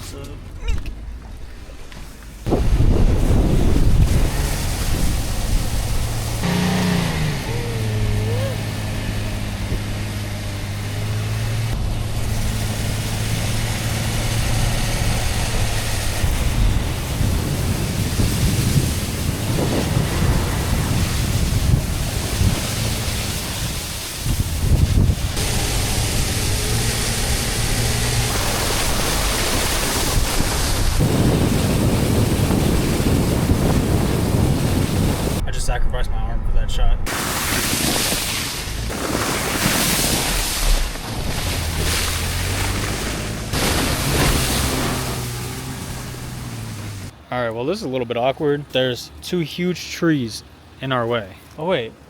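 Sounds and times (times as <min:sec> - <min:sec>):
wind on microphone: 0:02.4 - 0:10.1, 0:11.7 - 0:35.5
broad rushing noise: 0:02.4 - 0:35.5, 0:37.0 - 0:47.2
vehicle engine droning: 0:02.5 - 0:37.1, 0:40.6 - 0:47.3.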